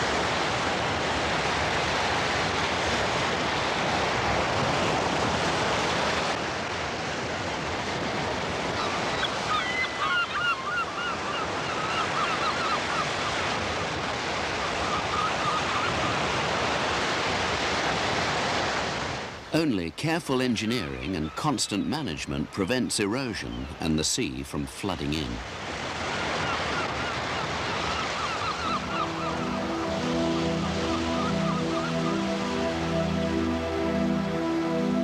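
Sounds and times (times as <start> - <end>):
surf breaking on shore: 0.0 - 10.0, 11.8 - 35.0.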